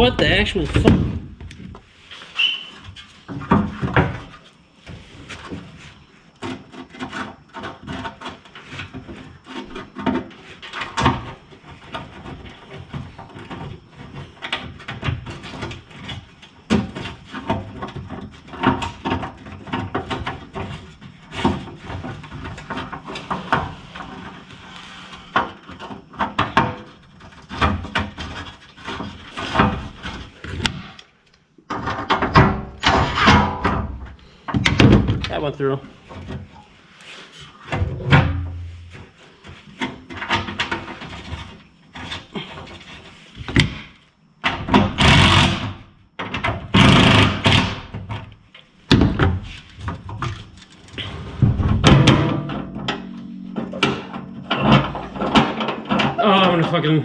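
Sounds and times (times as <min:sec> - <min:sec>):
metal scraping: 0:51.0 - 0:57.0.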